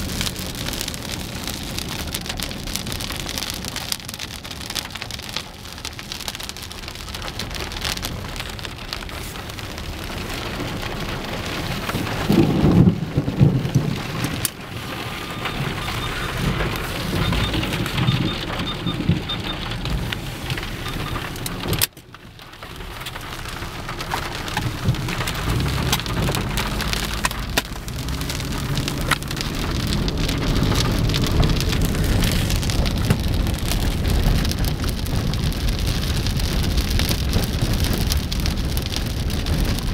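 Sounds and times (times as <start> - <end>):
heavy rain falling: 0.0 - 39.9
thunder rumbling: 10.6 - 21.8, 23.3 - 39.9.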